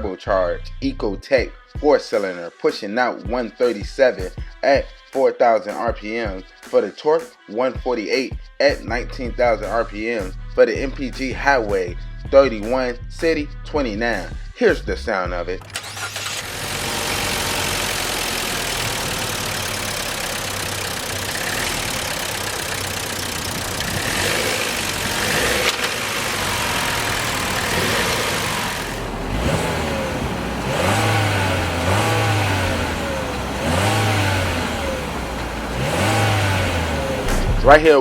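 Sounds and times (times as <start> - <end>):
car engine idling and revving: 15.6 - 38.0.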